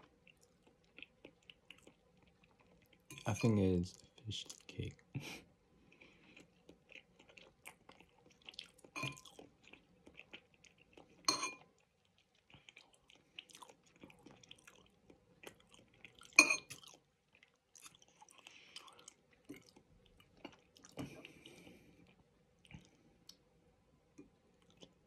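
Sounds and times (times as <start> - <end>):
chewing noodles: 0.0 - 23.5, 24.2 - 25.0
fork clinking on ceramic bowl: 11.3 - 11.7, 16.4 - 16.7.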